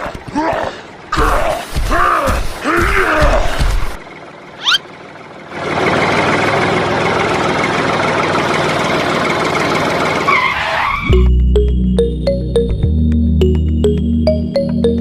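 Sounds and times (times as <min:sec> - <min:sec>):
tractor motor running: 0:01.8 - 0:10.9.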